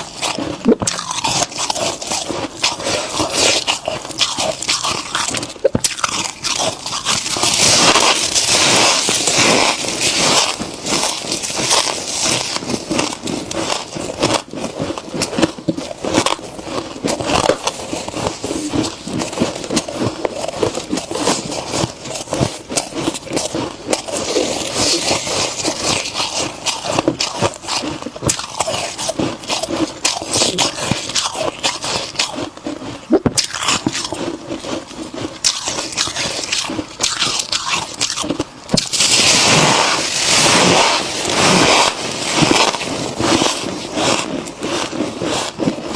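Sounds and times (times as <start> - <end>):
freezer frost crunching: 0.0 - 45.9.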